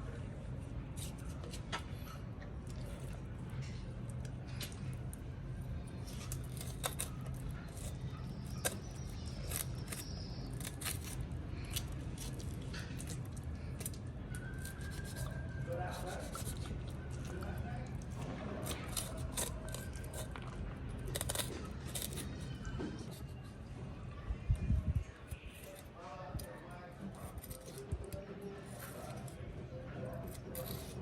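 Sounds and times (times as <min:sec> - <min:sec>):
steady low hum: 0:00.0 - 0:31.0
food preparation clicks and snips: 0:15.9 - 0:23.2.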